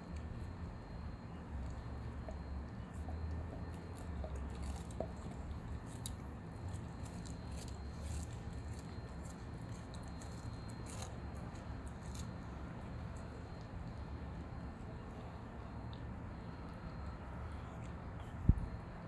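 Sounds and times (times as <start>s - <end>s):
steady low hum: 0.0s - 19.0s
dog chewing food: 1.3s - 14.1s.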